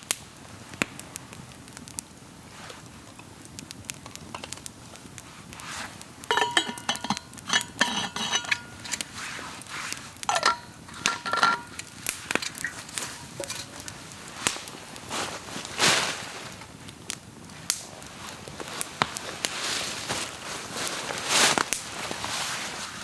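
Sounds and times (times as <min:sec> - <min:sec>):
metal cookware clinking and scraping: 0:04.3 - 0:04.6, 0:06.2 - 0:14.6.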